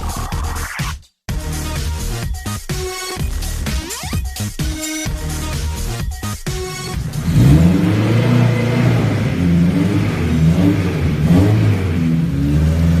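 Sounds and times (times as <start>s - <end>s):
race car engine revving: 6.5s - 13.0s.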